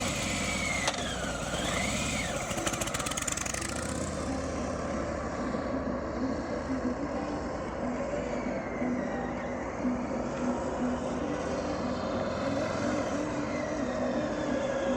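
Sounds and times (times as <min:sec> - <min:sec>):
motorcycle engine rumbling: 0:00.0 - 0:10.0
high wavering tone: 0:04.0 - 0:12.0.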